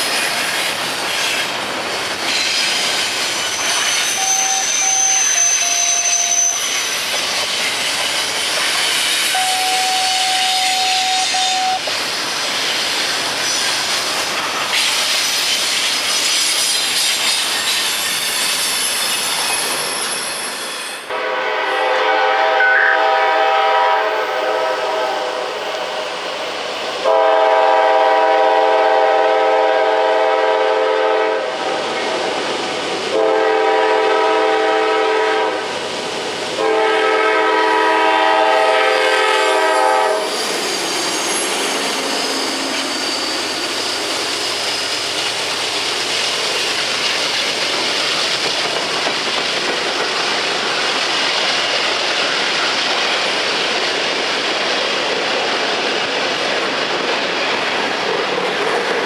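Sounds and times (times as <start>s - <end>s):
train wheel clatter: 0.0s - 21.1s, 38.9s - 59.0s
train rumble: 0.0s - 59.0s
locomotive horn blasts: 9.3s - 11.8s, 21.1s - 25.6s, 27.0s - 31.6s, 33.1s - 35.7s, 36.6s - 40.3s.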